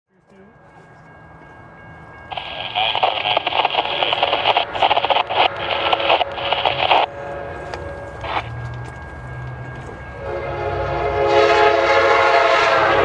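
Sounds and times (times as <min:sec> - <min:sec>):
radio static crackling: 0:02.3 - 0:07.1, 0:08.2 - 0:08.6.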